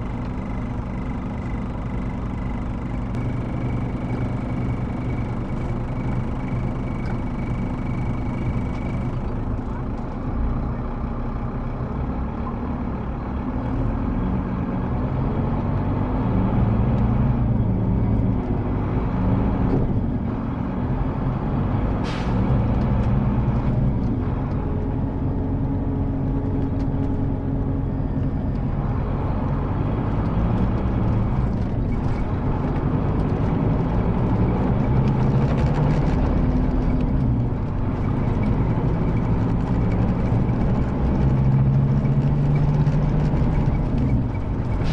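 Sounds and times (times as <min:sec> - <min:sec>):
bus engine running: 0:00.0 - 0:44.9
air brake hiss: 0:22.0 - 0:22.4.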